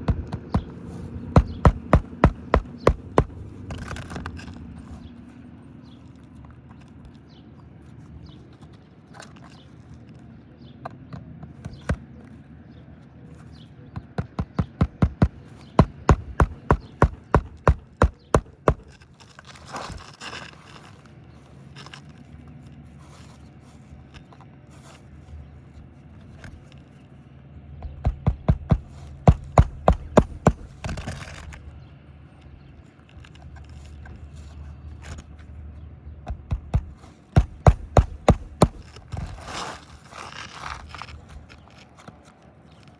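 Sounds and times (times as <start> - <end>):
hammer striking roofing nails: 0.0 - 3.9, 14.0 - 19.0, 27.8 - 31.1, 36.3 - 39.1
brief scraping: 39.1 - 41.3.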